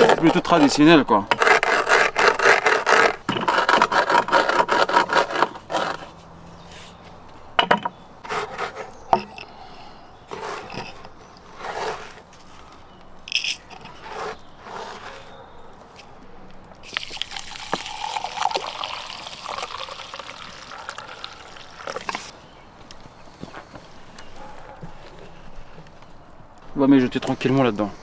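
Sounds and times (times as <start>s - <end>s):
scraping strokes: 0.0s - 7.5s, 8.2s - 16.2s, 23.0s - 28.0s.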